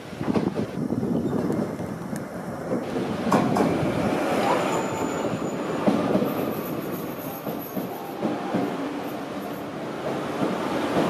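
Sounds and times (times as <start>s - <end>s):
train pulling into station: 0.0s - 11.0s
wheels clacking over rails: 2.7s - 11.0s
high-pitched brake squeals: 4.4s - 9.6s.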